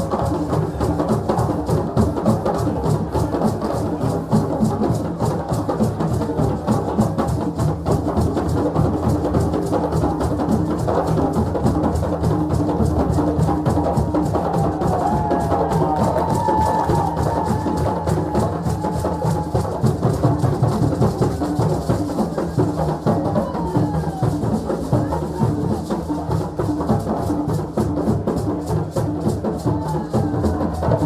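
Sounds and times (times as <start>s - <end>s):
drum ensemble playing fast rhythm: 0.0s - 31.0s.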